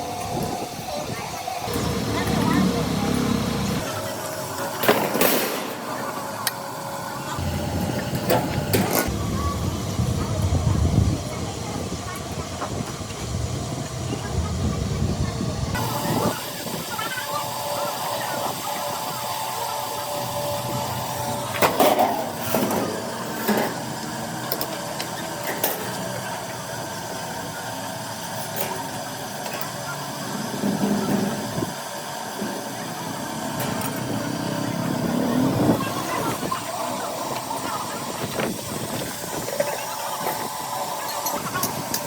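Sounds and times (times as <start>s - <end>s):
machine hum: 0.0s - 28.2s.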